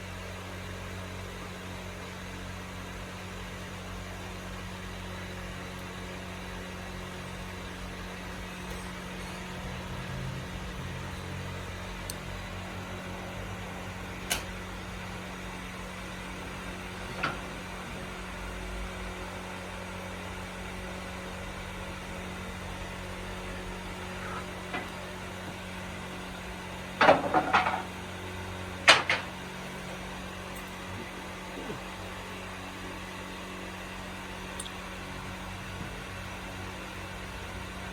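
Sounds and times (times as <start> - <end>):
steady mechanical hum: 0.0 - 37.9
knocks and clatters: 27.0 - 27.9, 28.9 - 29.4.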